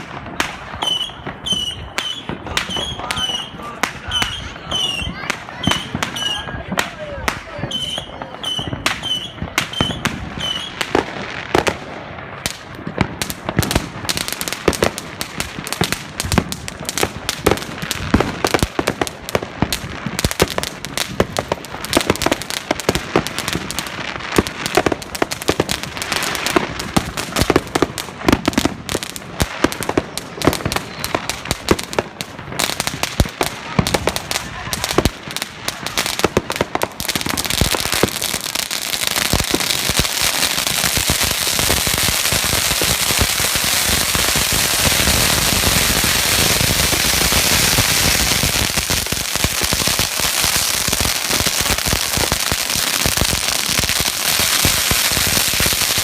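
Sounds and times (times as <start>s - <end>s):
fireworks crackling bangs: 0.0s - 56.0s.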